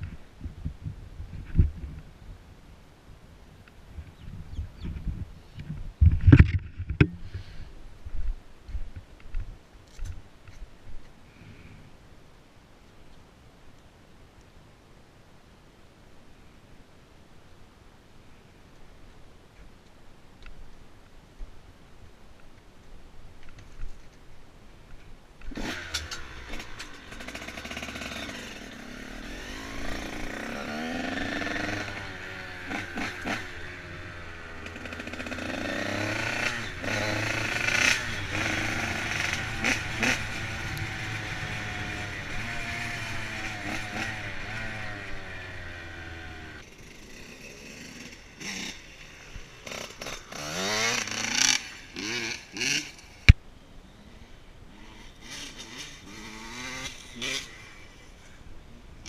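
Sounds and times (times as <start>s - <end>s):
motorcycle engine revving: 25.5s - 53.3s, 54.0s - 58.1s.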